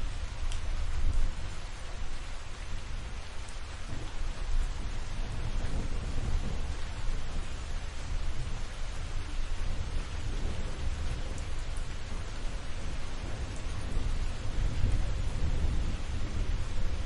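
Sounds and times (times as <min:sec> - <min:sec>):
steady rain: 0:00.0 - 0:17.0
distant thunder rumbling: 0:03.8 - 0:17.0.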